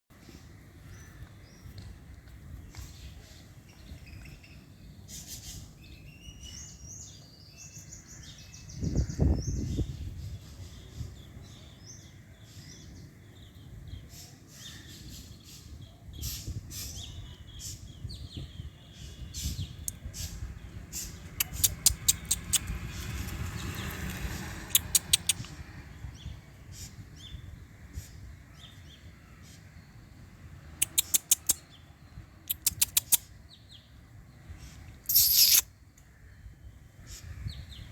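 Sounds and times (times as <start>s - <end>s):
small birds chirping: 0.1s - 37.9s
sharp clicks: 21.4s - 22.8s, 24.1s - 25.5s, 30.8s - 31.6s, 32.5s - 33.2s, 35.1s - 35.6s.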